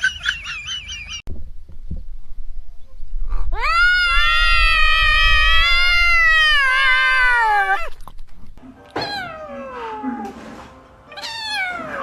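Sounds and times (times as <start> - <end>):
cat meowing: 3.6 - 7.9, 8.9 - 10.2, 11.1 - 12.0.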